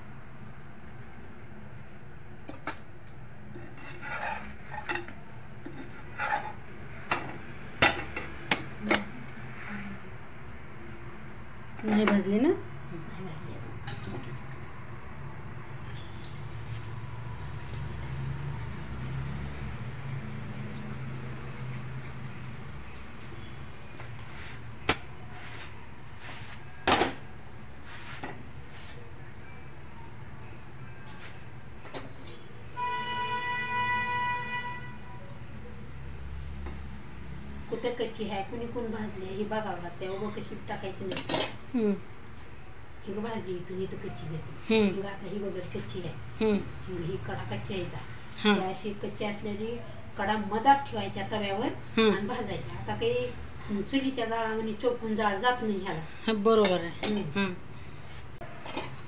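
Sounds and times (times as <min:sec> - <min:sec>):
metal spatula scraping iron pan: 0:03.5 - 0:07.2.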